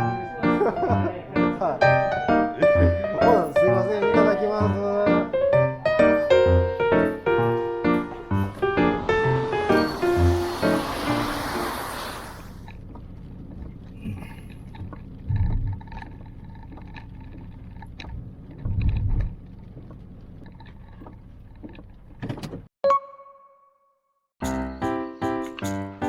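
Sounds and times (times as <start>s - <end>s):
short low rumbles: 12.5s - 22.2s.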